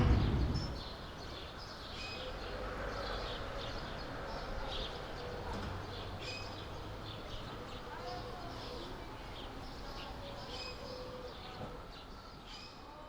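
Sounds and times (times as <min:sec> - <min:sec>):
birds chirping: 0:00.0 - 0:01.6
outdoor ambient hum: 0:00.0 - 0:01.8.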